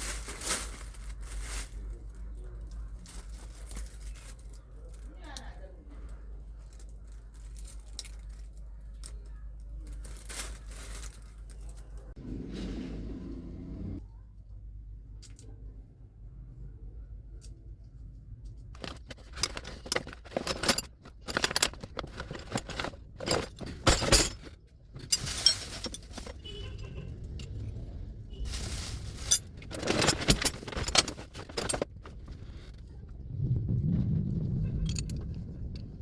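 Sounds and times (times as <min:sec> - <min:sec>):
metallic clinking and clattering: 0:18.8 - 0:27.9, 0:28.5 - 0:32.8.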